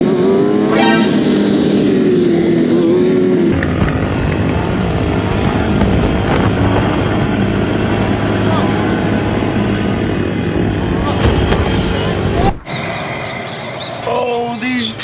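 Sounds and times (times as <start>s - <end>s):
motorcycle engine revving: 0.0s - 12.7s
heavy wind noise: 9.6s - 12.7s.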